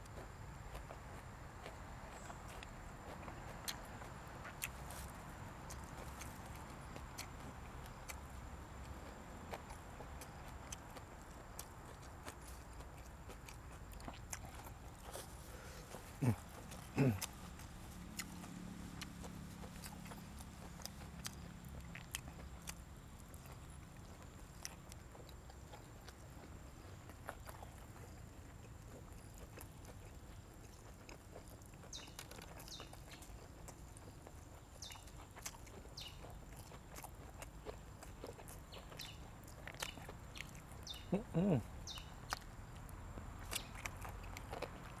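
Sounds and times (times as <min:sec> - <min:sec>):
mouth chewing and crunching: 0:00.0 - 0:45.0.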